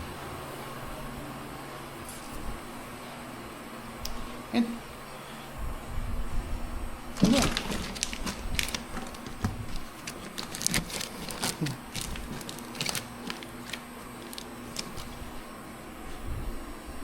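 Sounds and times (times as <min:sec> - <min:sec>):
plastic bag clicks and knocks: 0:07.2 - 0:15.2.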